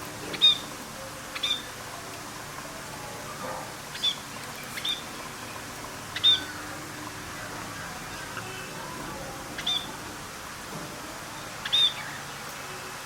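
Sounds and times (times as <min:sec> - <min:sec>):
bird chirping: 0:03.9 - 0:05.3, 0:06.1 - 0:06.6, 0:09.6 - 0:09.9.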